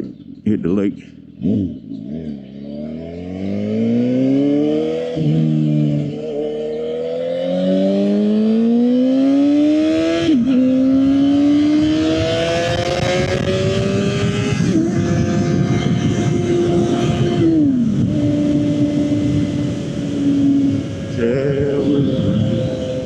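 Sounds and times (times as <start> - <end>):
motorcycle engine accelerating: 0.0 - 23.0
wind noise: 8.7 - 23.0.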